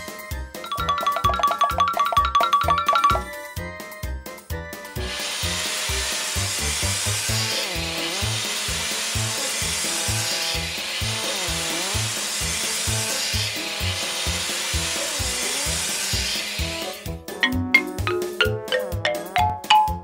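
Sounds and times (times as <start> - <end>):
cartoon machine buzzing whine: 5.0 - 17.0.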